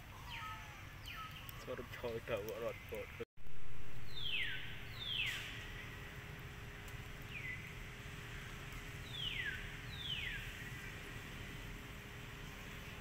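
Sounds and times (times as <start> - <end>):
outdoor background noise: 0.0 - 13.0
bird whistling calls: 0.2 - 1.7, 4.1 - 5.5, 9.1 - 10.5.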